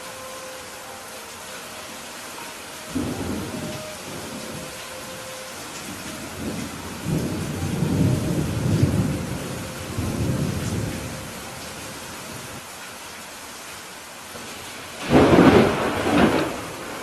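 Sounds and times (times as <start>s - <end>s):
steady rain: 0.0s - 17.0s
rolling thunder rumble: 2.9s - 5.1s, 5.7s - 11.6s, 15.0s - 17.0s.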